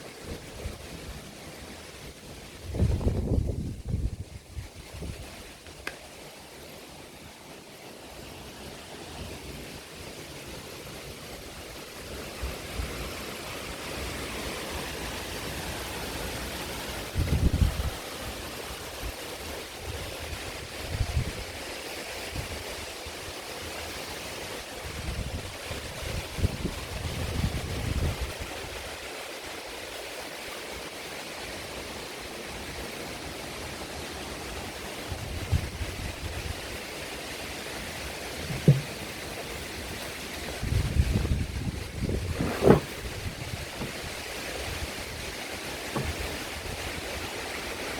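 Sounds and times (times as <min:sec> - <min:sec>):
wind gust buffeting microphone: 0:02.5 - 0:05.4, 0:40.5 - 0:47.2
heavy rain pouring: 0:05.1 - 0:47.9.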